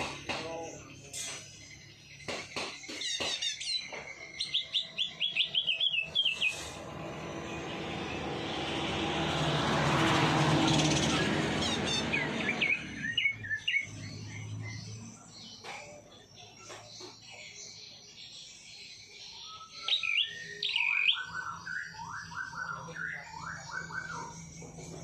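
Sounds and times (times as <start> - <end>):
songbird chirping: 0.0 - 25.0
rushing noise: 6.1 - 13.0.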